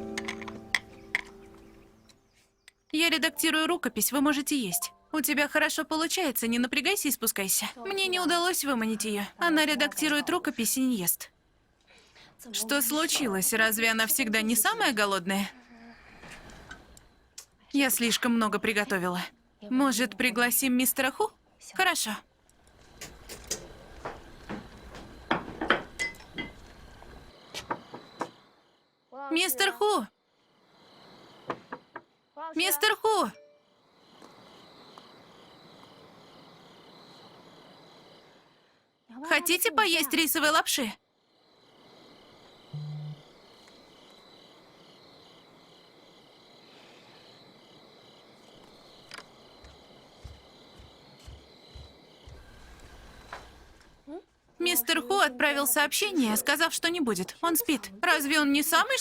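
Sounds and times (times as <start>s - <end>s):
crickets chirping: 0.0s - 59.0s
soft low thumps: 42.8s - 43.2s
brief low hum: 42.8s - 43.3s.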